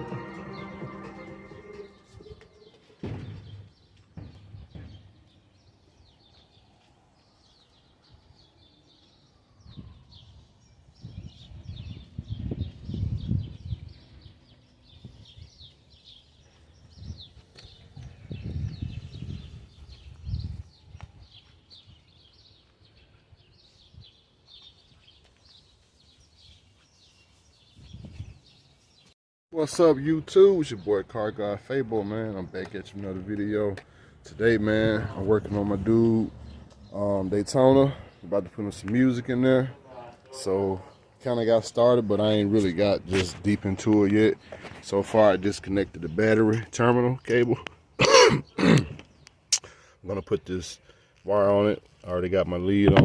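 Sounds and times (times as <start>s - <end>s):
birds chirping: 0.0s - 53.0s
dull thumps: 3.0s - 5.2s.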